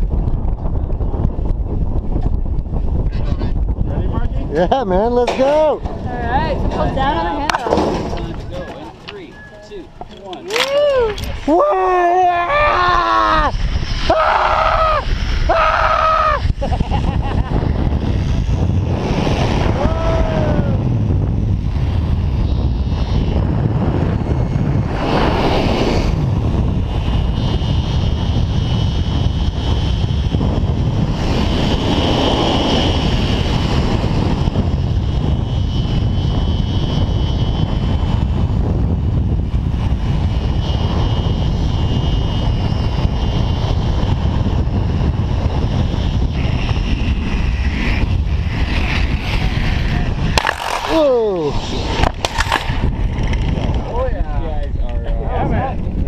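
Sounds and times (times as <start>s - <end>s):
wind rushing over microphone: 0.0s - 56.0s
person whooping: 10.5s - 16.5s, 19.8s - 20.8s, 50.9s - 51.6s.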